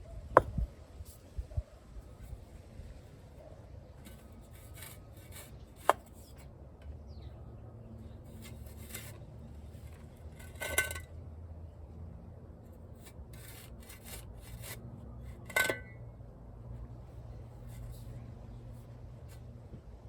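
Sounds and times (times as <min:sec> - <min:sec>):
scraping and rubbing: 0:03.3 - 0:06.6, 0:08.0 - 0:11.1, 0:12.7 - 0:15.9, 0:17.3 - 0:19.6.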